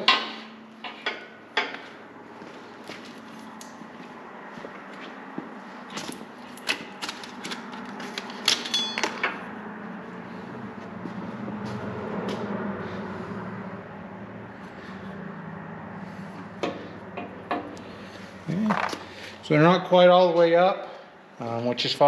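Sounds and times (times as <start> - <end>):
ringing metal clink: 8.7 - 9.1.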